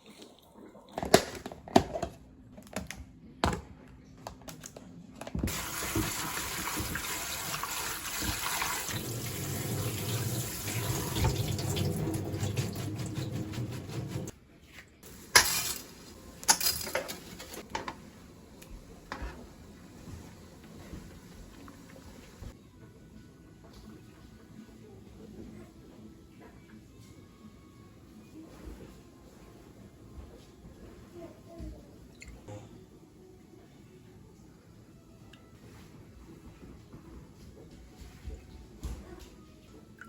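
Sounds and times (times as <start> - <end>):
tap water running into sink: 5.5 - 14.3.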